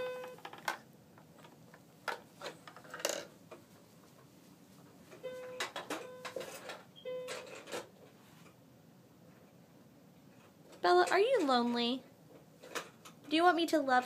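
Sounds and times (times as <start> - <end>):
toy electronic tones: 0.0 - 0.4, 5.2 - 6.4
toys clicking and knocking: 0.2 - 3.3.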